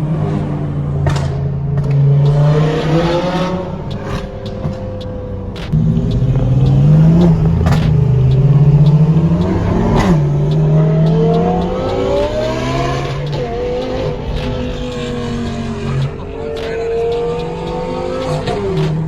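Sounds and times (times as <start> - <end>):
car engine accelerating: 0.0 - 19.0
higher engine note rising: 5.7 - 19.0.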